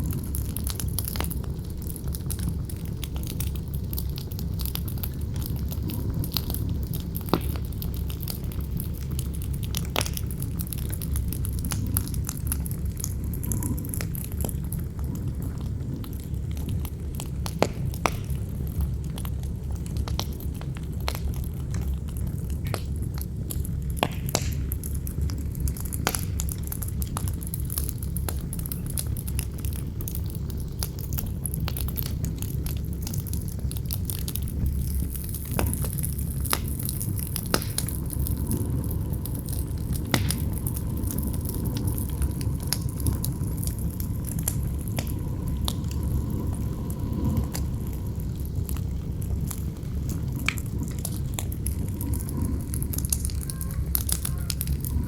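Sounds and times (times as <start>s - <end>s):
campfire crackling and popping: 0.0s - 55.0s
wind rumbling: 0.0s - 55.0s.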